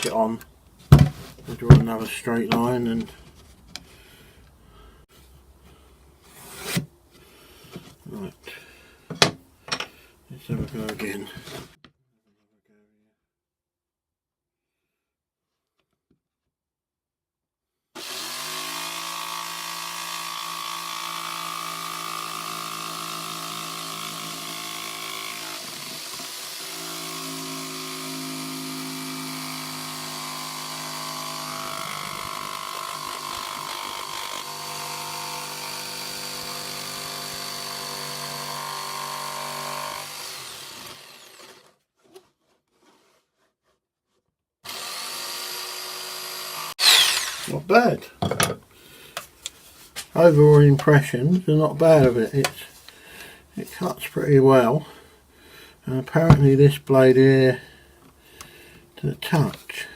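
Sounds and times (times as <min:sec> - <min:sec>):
jigsaw cutting wood: 0:18.0 - 0:41.8, 0:44.6 - 0:47.6
jigsaw winding down: 0:18.0 - 0:41.8, 0:44.6 - 0:47.6.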